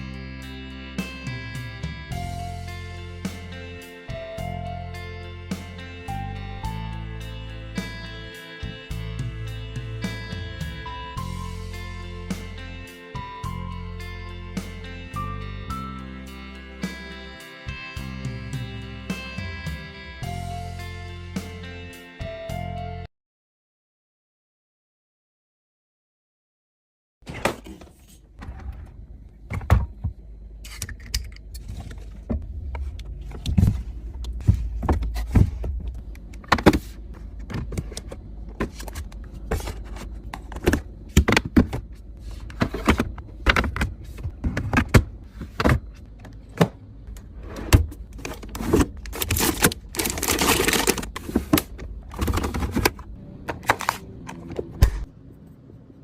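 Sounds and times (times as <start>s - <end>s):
containers clicking and clinking: 48.2s - 54.4s
packaging rustling and hissing: 48.4s - 52.9s.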